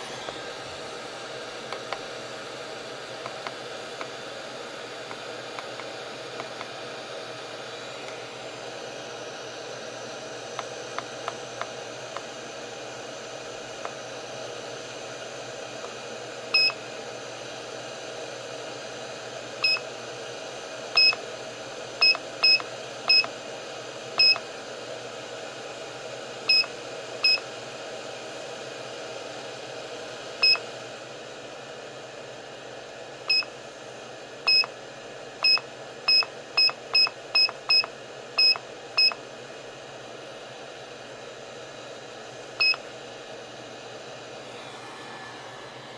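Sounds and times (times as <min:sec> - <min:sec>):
hot-air soldering station hissing: 0:00.0 - 0:28.4.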